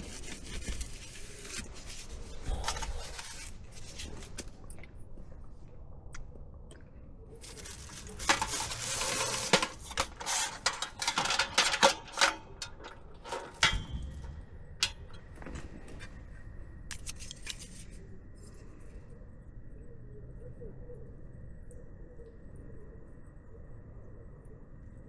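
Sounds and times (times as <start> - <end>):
rustling and crinkling: 0.0 - 5.8, 7.3 - 18.6.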